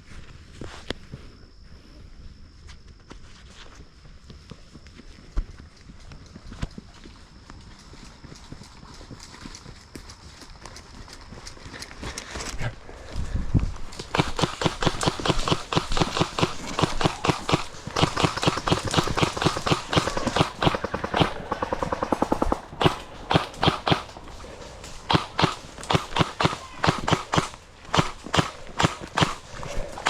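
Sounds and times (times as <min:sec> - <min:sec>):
airsoft guns firing: 0:14.0 - 0:30.0.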